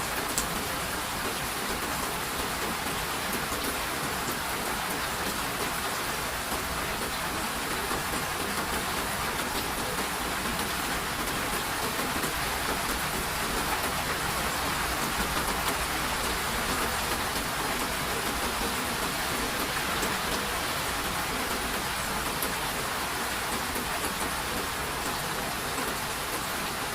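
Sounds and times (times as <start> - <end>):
raindrop ticks: 0.2 - 0.6.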